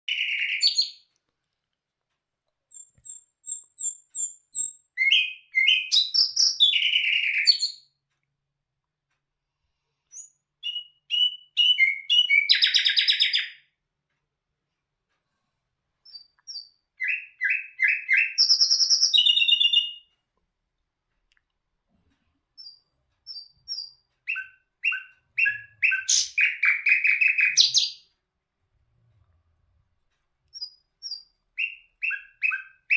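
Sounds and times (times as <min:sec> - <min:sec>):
songbird singing: 0:00.1 - 0:01.0, 0:02.7 - 0:07.8, 0:10.2 - 0:13.6, 0:16.1 - 0:20.1, 0:22.6 - 0:28.0, 0:30.5 - 0:32.9.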